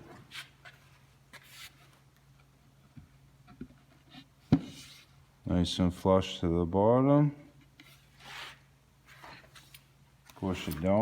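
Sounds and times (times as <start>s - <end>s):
faint handling noises: 7.5s - 11.0s.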